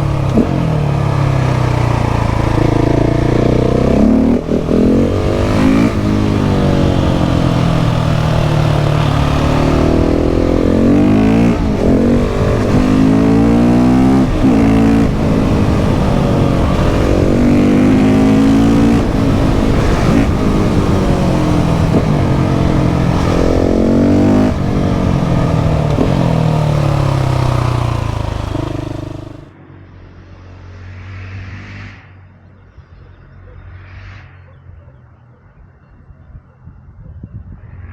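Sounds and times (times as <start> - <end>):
motorcycle engine accelerating: 0.0 - 32.7.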